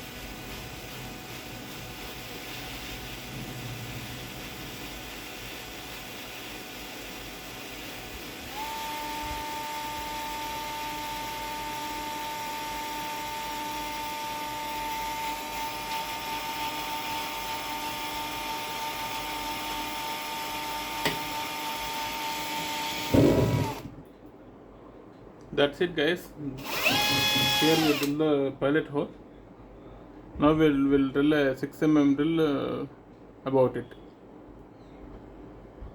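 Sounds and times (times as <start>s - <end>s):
electric drill whining: 0.0s - 23.9s, 26.6s - 28.2s
drill click: 4.2s - 23.9s, 26.6s - 28.2s
loud low thump: 23.1s - 23.9s.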